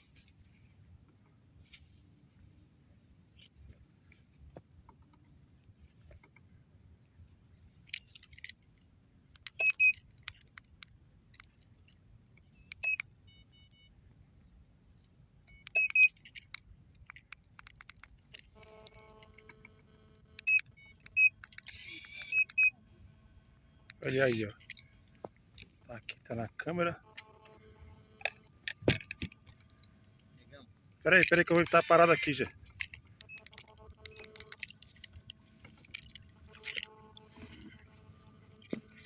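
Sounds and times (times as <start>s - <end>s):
faint steady hum: 0.0s - 39.0s
light clicks and rattles: 3.4s - 13.8s, 15.0s - 19.8s.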